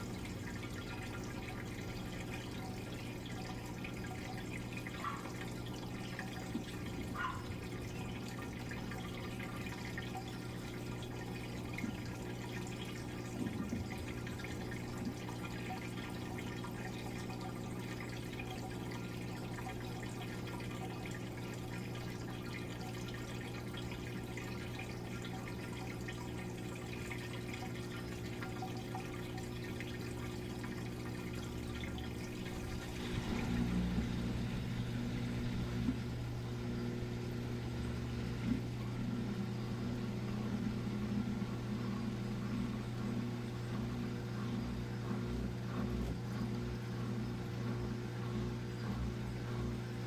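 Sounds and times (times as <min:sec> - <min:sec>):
water trickling and dripping: 0:00.0 - 0:33.7
washing machine hum: 0:00.0 - 0:50.0.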